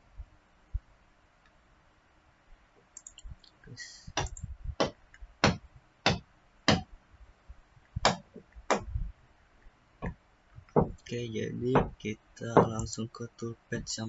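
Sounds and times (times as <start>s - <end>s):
computer mouse clicking: 2.9s - 4.9s.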